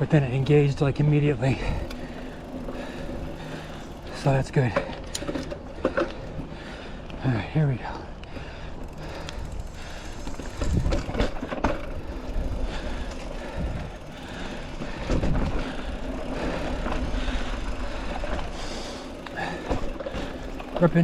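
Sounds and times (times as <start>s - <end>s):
bike rattling: 0.0s - 21.0s
bike tyres rolling on dirt: 0.0s - 21.0s
wind rumbling on microphone: 9.4s - 14.1s, 14.8s - 15.9s.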